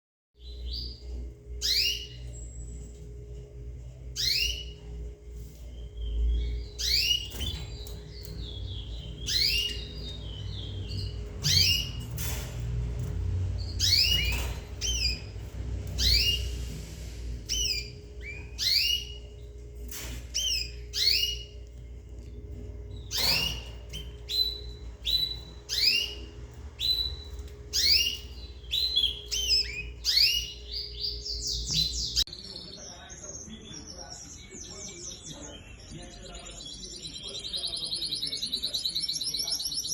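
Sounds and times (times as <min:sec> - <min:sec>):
faint steady hum: 0:00.4 - 0:32.3
canaries whistling: 0:00.4 - 0:39.9.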